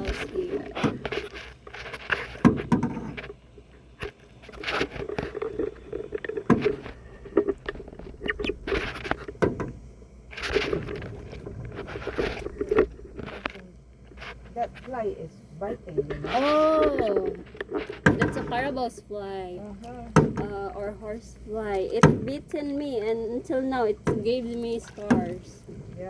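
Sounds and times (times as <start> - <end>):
canoe paddles swishing through water: 4.0 - 13.4, 21.7 - 26.0.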